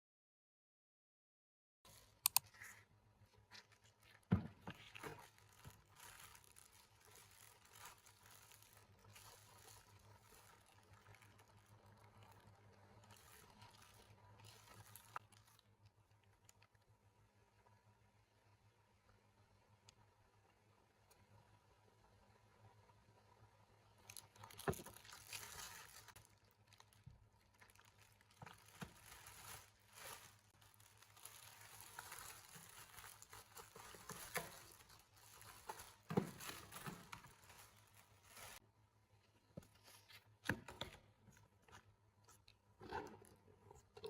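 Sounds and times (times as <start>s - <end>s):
rustling and crinkling: 1.9s - 16.8s, 24.0s - 38.6s, 39.2s - 44.0s.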